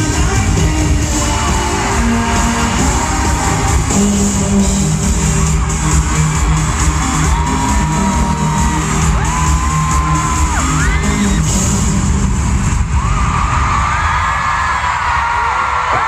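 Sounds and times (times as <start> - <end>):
live pop band playing: 0.0 - 12.6
crowd screaming: 1.1 - 11.9, 12.6 - 16.0.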